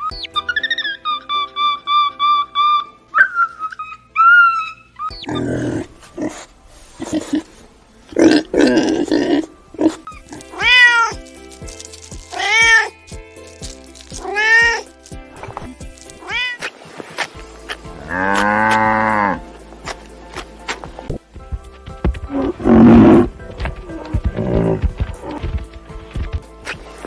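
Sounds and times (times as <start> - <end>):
whistled tune: 0.0 - 5.4
rough noisy cat sounds: 5.3 - 11.3, 12.3 - 13.0, 22.0 - 25.7
cat meowing: 10.6 - 11.2, 12.3 - 13.0, 14.2 - 14.8, 16.2 - 16.6
light ticking beat: 17.4 - 27.0.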